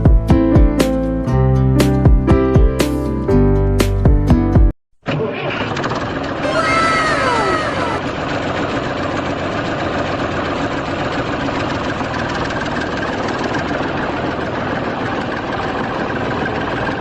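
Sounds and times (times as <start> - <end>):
tractor engine idling: 5.1 - 17.0.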